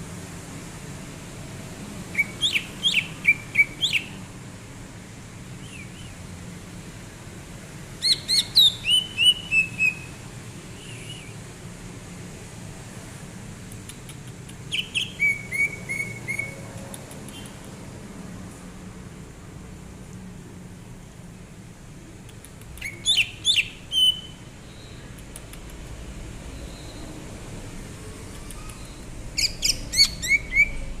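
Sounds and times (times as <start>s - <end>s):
bird singing whistled notes: 2.1s - 4.2s, 5.6s - 6.2s, 8.0s - 10.1s, 10.8s - 11.4s, 14.7s - 16.6s, 22.8s - 25.0s, 26.6s - 27.1s, 28.6s - 30.9s.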